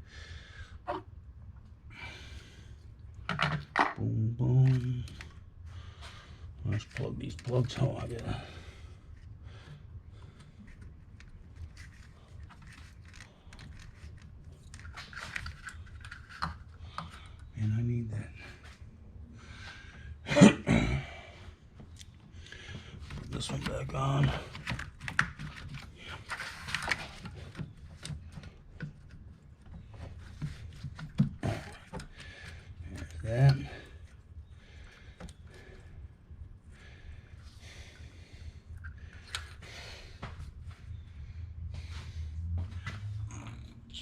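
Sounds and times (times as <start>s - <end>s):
plastic fittings clicking and rustling: 10.4s - 17.4s, 22.7s - 34.2s.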